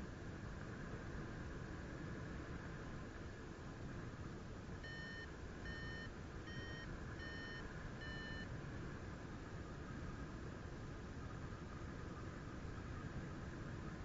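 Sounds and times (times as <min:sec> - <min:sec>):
variometer beeping: 0:04.8 - 0:08.5.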